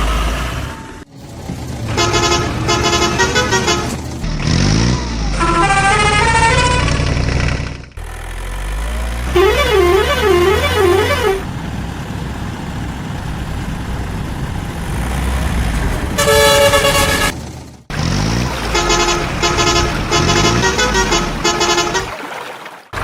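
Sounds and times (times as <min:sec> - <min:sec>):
heavy vehicle engine rumbling: 0:00.0 - 0:22.1
vehicle horn: 0:01.8 - 0:04.0, 0:05.3 - 0:07.0, 0:09.3 - 0:11.4, 0:16.2 - 0:17.4, 0:18.5 - 0:22.2.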